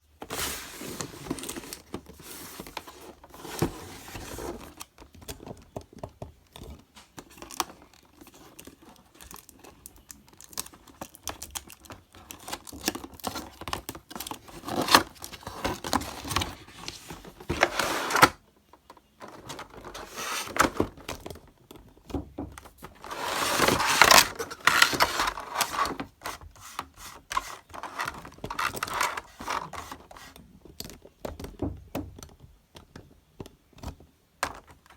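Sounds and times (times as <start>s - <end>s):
packaging rustling and tearing: 10.3s - 18.4s, 19.2s - 21.8s, 22.7s - 30.4s.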